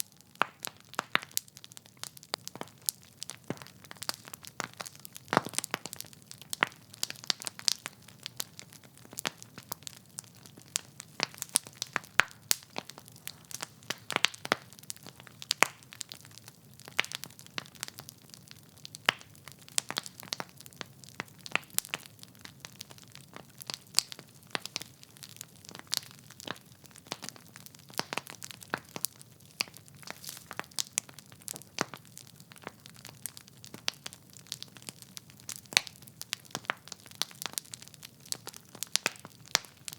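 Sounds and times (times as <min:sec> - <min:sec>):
logs crackling and popping: 0:00.0 - 0:39.9
faint fire hiss: 0:28.8 - 0:31.1.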